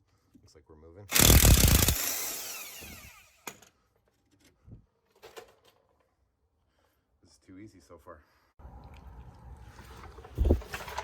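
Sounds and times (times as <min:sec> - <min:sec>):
impact wrench hammering: 0:01.1 - 0:03.7.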